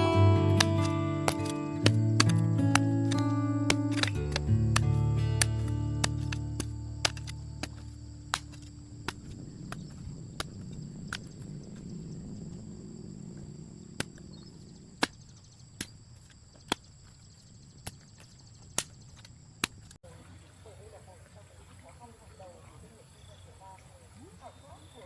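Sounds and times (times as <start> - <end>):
sharp knocks: 0.0 - 11.4.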